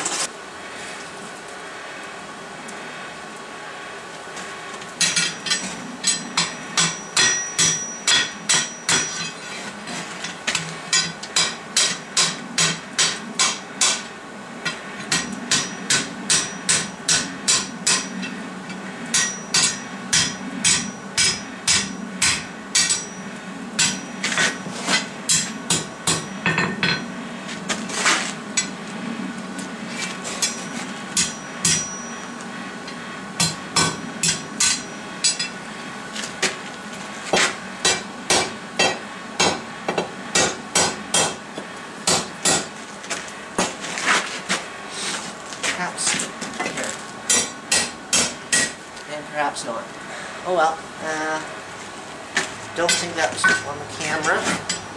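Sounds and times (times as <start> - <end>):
hammer ringing on steel and anvil: 5.0 - 9.4, 10.9 - 14.0, 15.1 - 18.4, 19.1 - 24.2, 25.3 - 27.1, 30.4 - 32.3, 33.4 - 35.6, 52.9 - 53.8.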